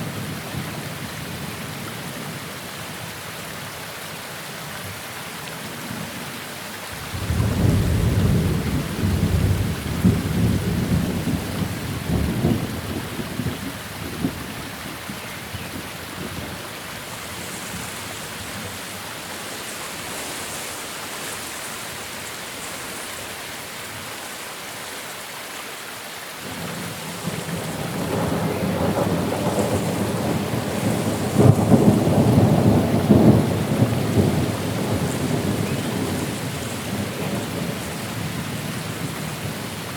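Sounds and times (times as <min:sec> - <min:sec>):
steady rain: 0:00.0 - 0:39.9
thunder rolling: 0:07.0 - 0:14.5, 0:27.1 - 0:39.4.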